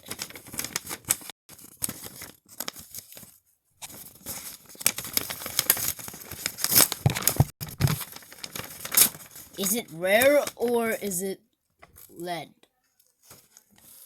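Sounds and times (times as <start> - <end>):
packaging tearing and crinkling: 0.0 - 9.6.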